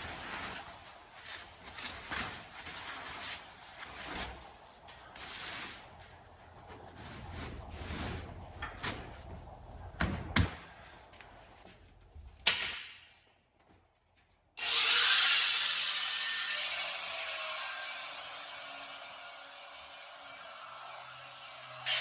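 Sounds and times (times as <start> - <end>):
power tool cutting steel tubing: 14.6 - 22.0.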